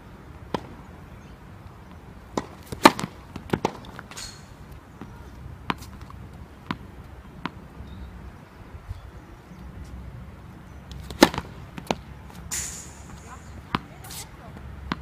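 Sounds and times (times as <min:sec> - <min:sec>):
tennis balls bouncing on court: 0:00.4 - 0:00.9, 0:01.8 - 0:07.8, 0:10.9 - 0:12.5, 0:13.1 - 0:15.0
tennis balls struck by racquets: 0:00.4 - 0:01.0, 0:01.8 - 0:07.8, 0:10.9 - 0:15.0.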